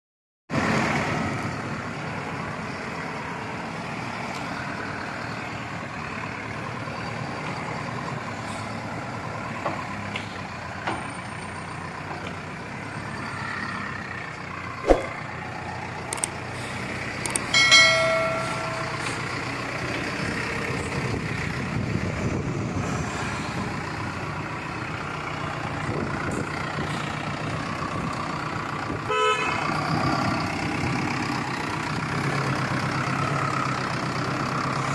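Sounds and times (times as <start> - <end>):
diesel engine running: 0.6 - 34.9
high-pitched tone: 17.6 - 19.4.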